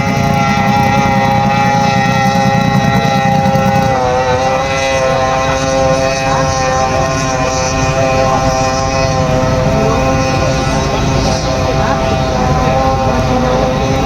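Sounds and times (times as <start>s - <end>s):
powerboat engine running: 0.0s - 14.0s.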